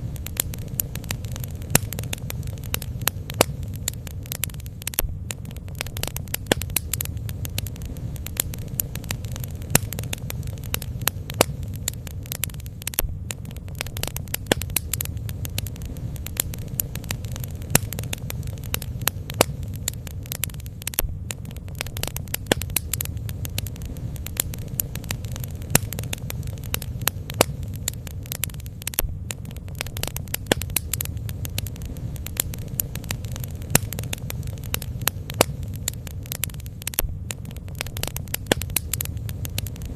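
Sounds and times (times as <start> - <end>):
bonfire wood popping and snapping: 0.0 - 39.9
low rumble: 0.0 - 39.9.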